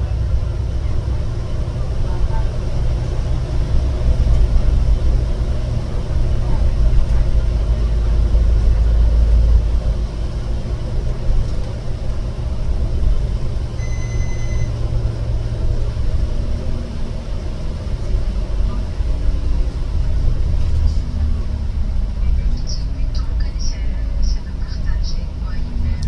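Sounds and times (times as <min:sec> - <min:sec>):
low rumble: 0:00.0 - 0:26.0
short high-pitched beep: 0:13.8 - 0:14.8.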